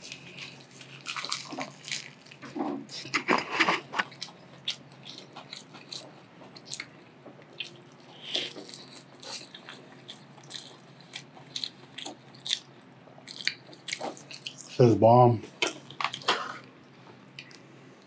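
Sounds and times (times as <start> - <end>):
chewing with mouth clicks: 0.0 - 14.8, 15.6 - 17.7.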